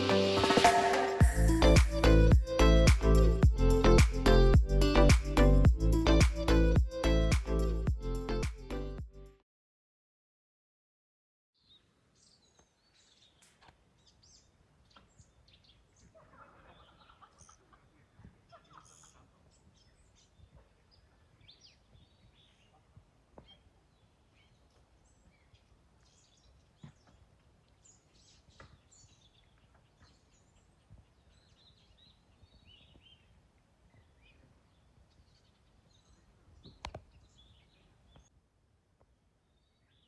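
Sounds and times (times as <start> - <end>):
birds chirping and calling: 12.5 - 22.8.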